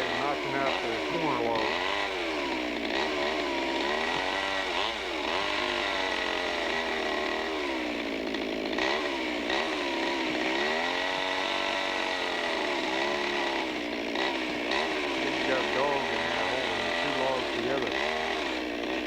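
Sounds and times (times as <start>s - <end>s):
chainsaw cutting log: 0.0s - 19.0s.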